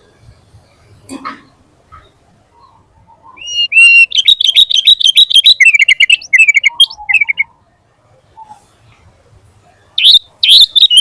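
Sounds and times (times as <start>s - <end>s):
bird singing: 2.0s - 7.6s, 10.0s - 11.0s.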